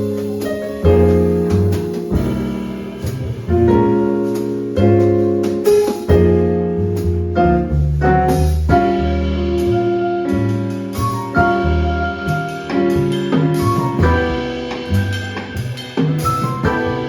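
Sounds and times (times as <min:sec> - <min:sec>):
drum and cymbal taps: 0:00.0 - 0:06.4
bass: 0:00.0 - 0:17.0
piano chords: 0:00.0 - 0:17.0.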